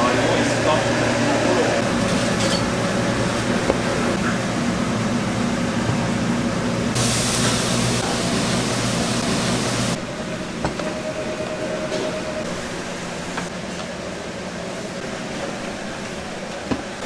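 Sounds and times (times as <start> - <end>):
kitchen machine hum: 0.0 - 17.0
loud hiss: 7.0 - 10.0.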